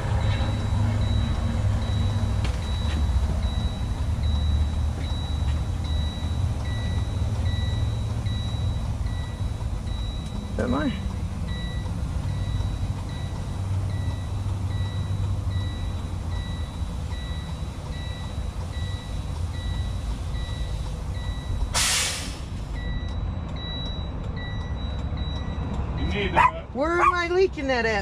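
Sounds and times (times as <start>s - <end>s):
low steady rumble: 0.0s - 21.8s
dashboard warning alarm beeping: 0.0s - 28.0s
air hissing out: 21.7s - 22.6s.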